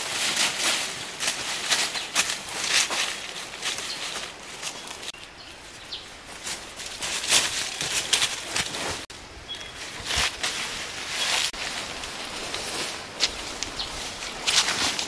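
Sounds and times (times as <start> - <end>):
leaves rustling and crackling: 0.0 - 15.0
faint bird chirp: 9.4 - 9.8.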